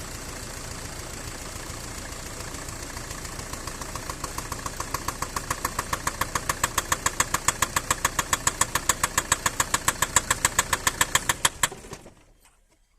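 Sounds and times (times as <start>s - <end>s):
van engine idling: 0.0s - 12.4s
sharp engine knocking: 3.0s - 12.0s.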